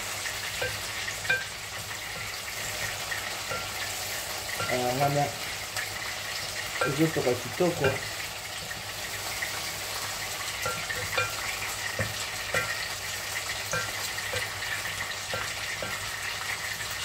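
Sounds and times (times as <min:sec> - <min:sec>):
vegetables sizzling in a pot: 0:00.0 - 0:17.0
wooden spoon knocking against pot: 0:00.6 - 0:03.8, 0:07.7 - 0:08.8, 0:10.6 - 0:13.0, 0:13.6 - 0:16.2.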